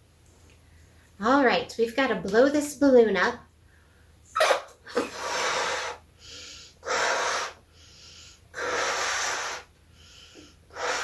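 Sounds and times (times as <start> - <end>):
person blowing into balloon: 4.3 - 9.7, 10.7 - 11.0
person breathing in: 5.0 - 11.0.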